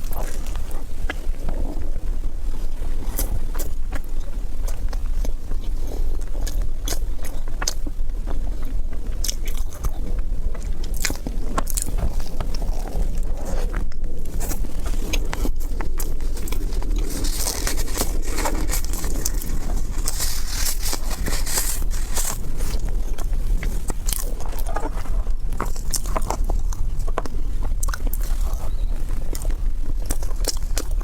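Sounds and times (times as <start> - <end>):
chewing crunchy food: 0.0 - 31.0
hissing rustle: 16.2 - 24.1.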